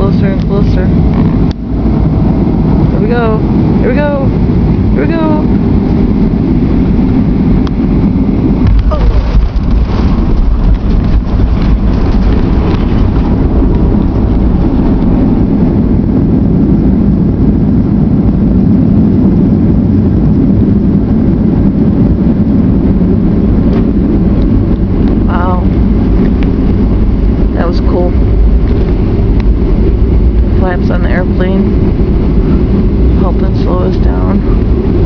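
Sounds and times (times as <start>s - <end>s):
airliner rumble on runway: 0.0s - 35.0s
knocks and rattles of wheels: 8.6s - 15.4s.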